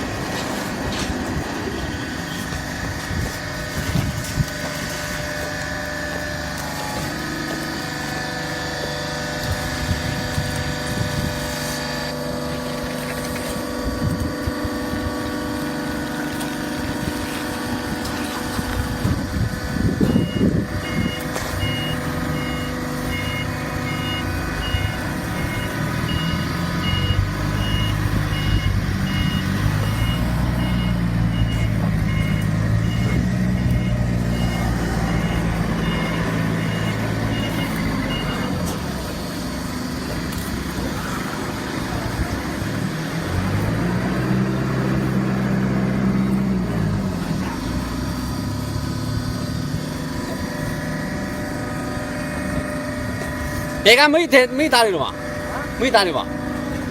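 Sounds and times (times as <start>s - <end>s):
baler machine hum: 0.0s - 56.9s
low engine rumble: 0.0s - 56.9s
repeating warning beep: 20.0s - 38.8s.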